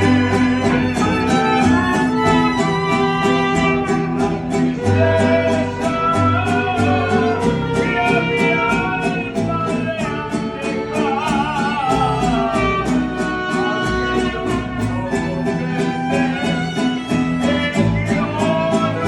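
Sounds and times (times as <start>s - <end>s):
violins playing with vibrato: 0.0s - 9.4s
strummed guitars: 0.0s - 19.0s.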